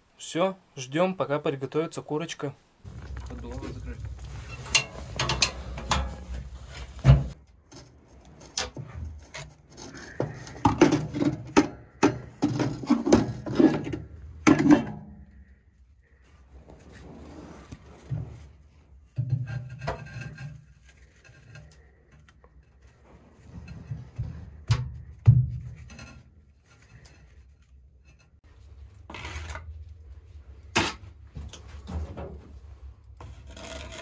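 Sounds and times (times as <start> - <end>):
hard objects scraping and rubbing: 2.8 - 14.9, 16.0 - 24.6, 25.7 - 30.0, 32.6 - 34.0.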